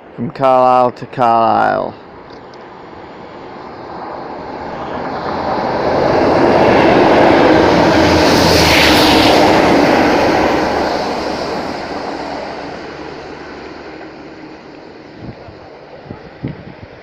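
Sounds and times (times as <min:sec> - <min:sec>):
train passing at speed: 0:01.6 - 0:17.0.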